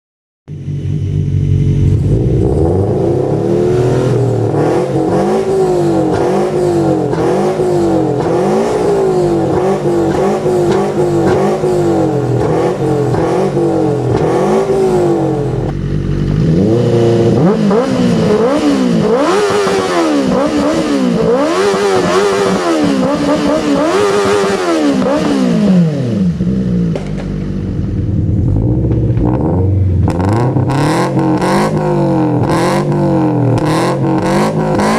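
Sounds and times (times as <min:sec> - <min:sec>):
engine idling: 0:00.5 - 0:19.4, 0:26.3 - 0:31.8
engine revving: 0:00.5 - 0:34.9.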